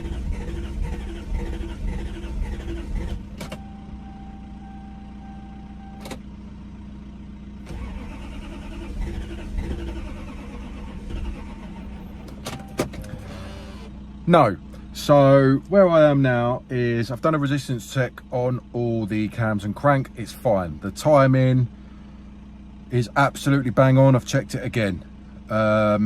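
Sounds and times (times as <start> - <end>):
starter motor cranking engine: 0.0 - 3.6, 7.6 - 14.0
steady beep: 3.5 - 6.0.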